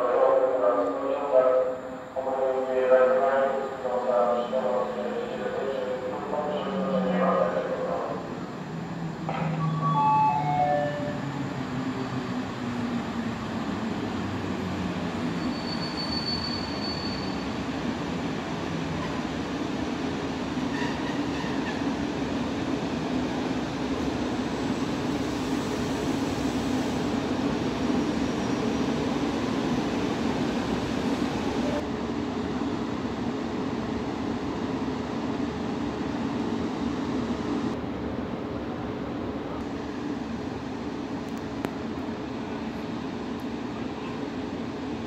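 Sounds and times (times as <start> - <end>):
high-pitched squeal: 9.3 - 12.2.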